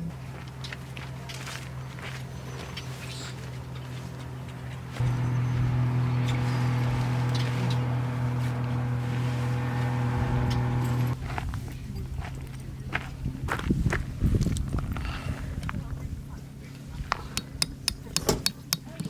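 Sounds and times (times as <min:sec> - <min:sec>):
low mechanical hum: 0:00.1 - 0:11.4.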